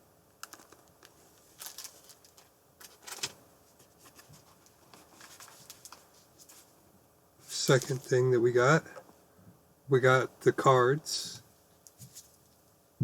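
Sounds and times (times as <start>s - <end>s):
packaging rustling: 0.4s - 3.4s, 4.0s - 6.7s.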